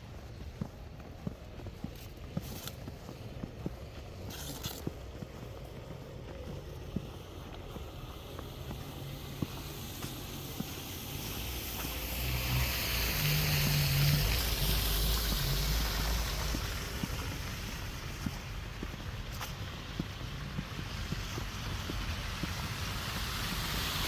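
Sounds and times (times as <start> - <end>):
vehicle passing by: 7.1 - 19.0, 20.1 - 24.0.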